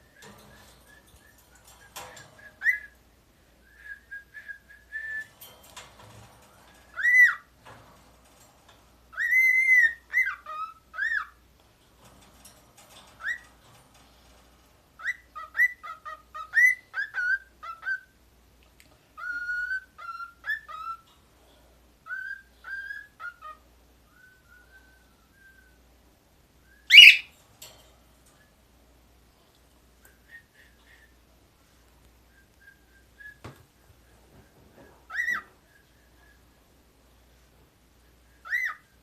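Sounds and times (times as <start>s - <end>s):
cockatiel whistling: 0.1s - 3.0s, 6.9s - 7.4s, 9.1s - 11.4s, 15.0s - 18.1s, 19.2s - 21.1s, 22.0s - 25.8s, 26.6s - 27.3s, 35.1s - 36.4s, 38.3s - 39.0s.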